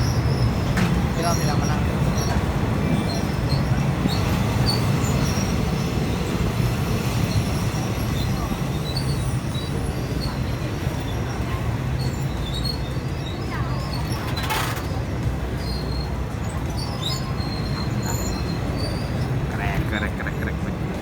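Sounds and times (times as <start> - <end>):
train wheels rumbling: 0.0 - 21.0
faint high squeaks: 8.8 - 19.4.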